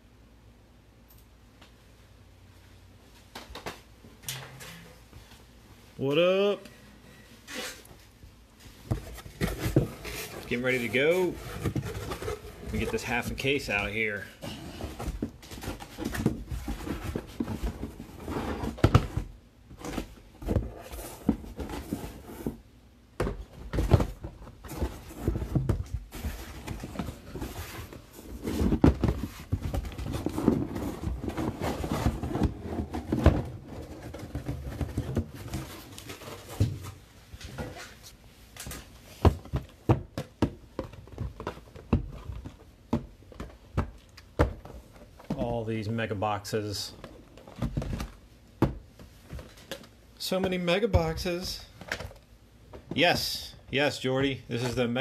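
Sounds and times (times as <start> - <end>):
cardboard boxes knocking on a table: 39.2 - 44.6.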